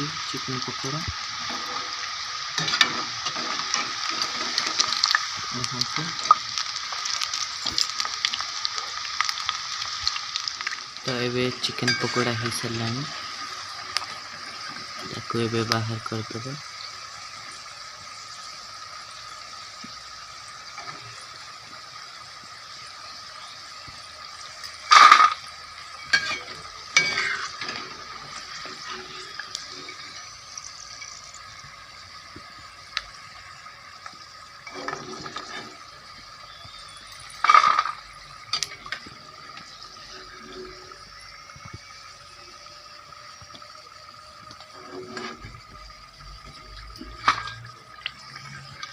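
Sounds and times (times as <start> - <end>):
food sizzling in oil: 0.0 - 48.9
metal spoon clanking on pan: 2.6 - 4.6, 11.8 - 12.4, 26.0 - 27.8.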